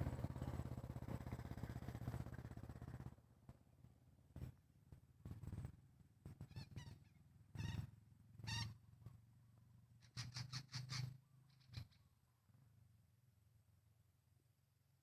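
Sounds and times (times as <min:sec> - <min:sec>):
parakeets calling: 0:06.5 - 0:07.8, 0:08.4 - 0:08.8, 0:10.0 - 0:12.0.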